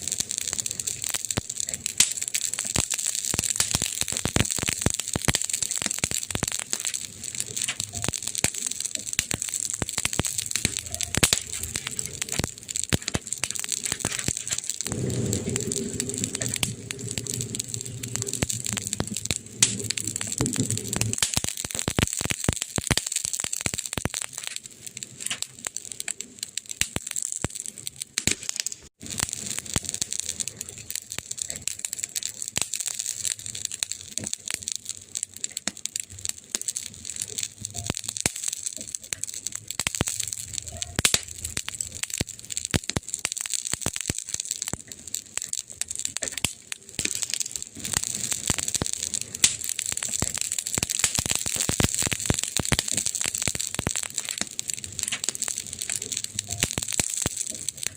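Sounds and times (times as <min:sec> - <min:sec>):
firewood crackling: 0:00.0 - 0:57.9.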